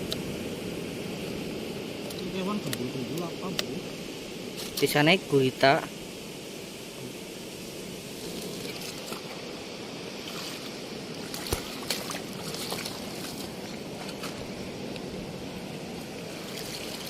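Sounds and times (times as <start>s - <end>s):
seawater washing and splashing: 6.6s - 17.0s.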